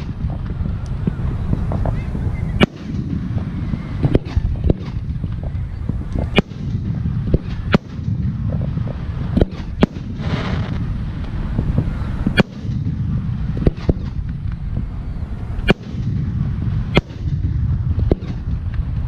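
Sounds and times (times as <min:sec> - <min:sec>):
firework hiss: 0:00.0 - 0:19.0
fireworks bangs: 0:00.0 - 0:19.0
low rumble: 0:00.0 - 0:19.0.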